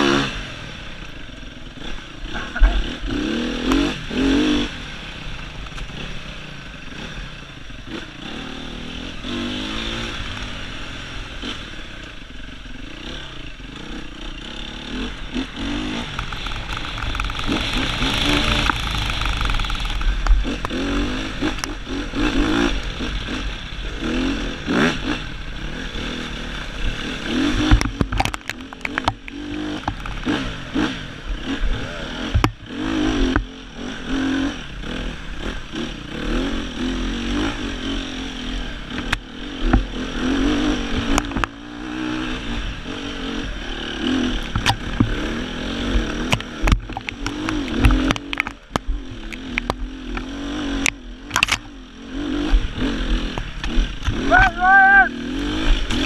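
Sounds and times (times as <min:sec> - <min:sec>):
motorcycle engine revving: 0:00.0 - 0:56.0
bike knocking on rough ground: 0:46.3 - 0:49.9.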